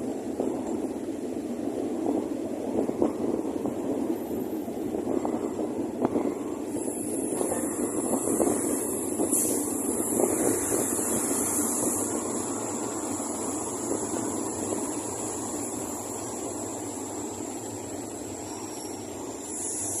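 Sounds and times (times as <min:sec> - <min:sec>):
air rush: 0:00.0 - 0:20.0
train wheel-on-rail rumble: 0:00.0 - 0:20.0.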